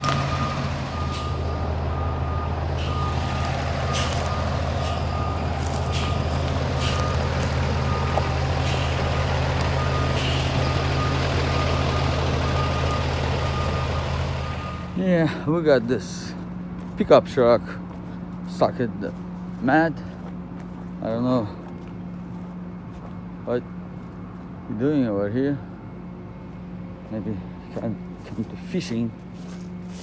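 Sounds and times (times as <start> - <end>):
truck engine running: 0.0 - 30.0
electronic backup beeper: 0.3 - 14.9.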